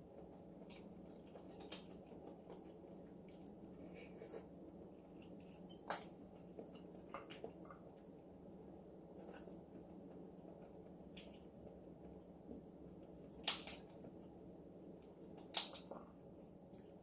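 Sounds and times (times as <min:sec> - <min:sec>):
low steady hum: 0:00.0 - 0:17.0
crab shell clicking: 0:13.4 - 0:13.9, 0:15.4 - 0:15.9.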